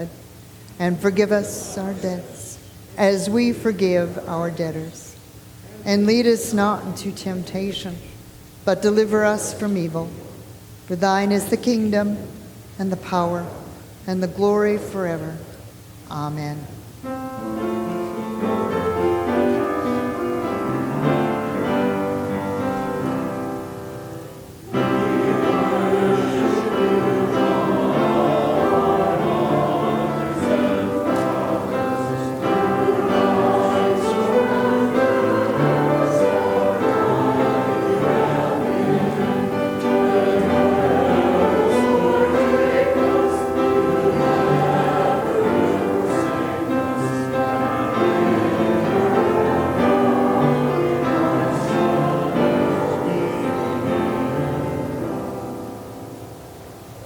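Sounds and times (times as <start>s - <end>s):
choir singing with accompaniment: 17.0s - 57.0s.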